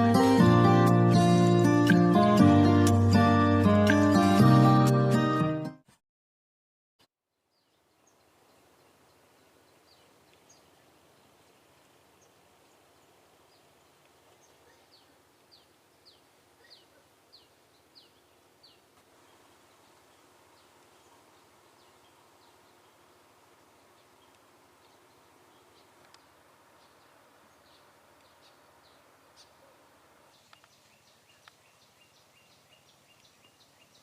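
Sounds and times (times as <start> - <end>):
bird chirping: 7.3 - 34.0.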